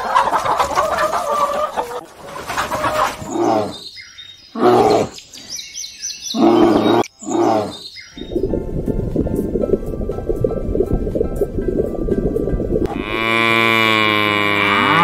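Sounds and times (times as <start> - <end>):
birds chirping: 1.1 - 8.7.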